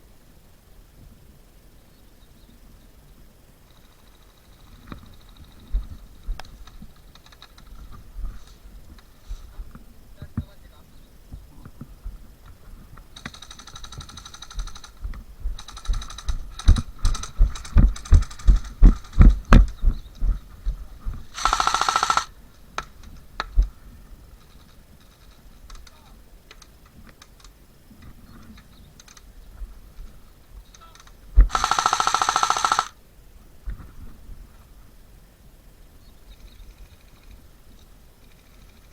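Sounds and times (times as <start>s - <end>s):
airsoft gun buzzing bursts: 13.2s - 15.0s, 15.6s - 19.8s, 21.2s - 22.4s, 30.7s - 33.0s
heavy thumps: 14.6s - 22.2s.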